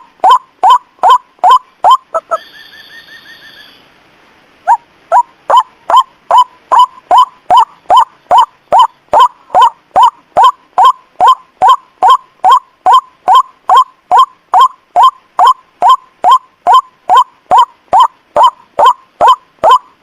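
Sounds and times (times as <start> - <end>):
loud short rising bird calls: 0.2 - 3.9.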